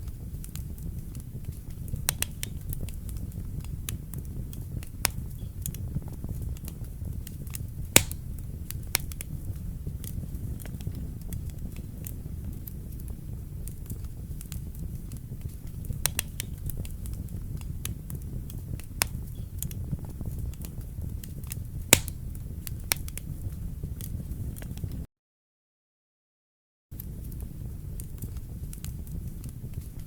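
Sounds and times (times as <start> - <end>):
fire crackling and popping: 0.0 - 25.1, 26.9 - 30.0
low rumble of flames: 0.0 - 25.1, 26.9 - 30.0.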